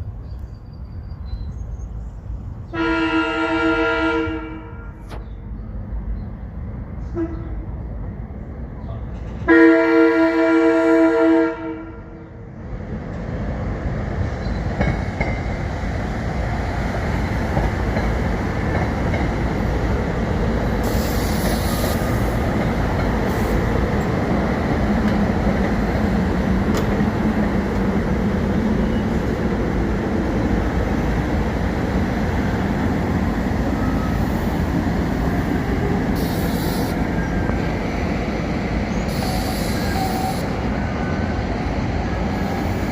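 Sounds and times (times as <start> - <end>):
train rumble and wheel noise: 0.0 - 42.9
train horn blast: 2.7 - 5.1, 7.1 - 7.6, 9.5 - 12.2.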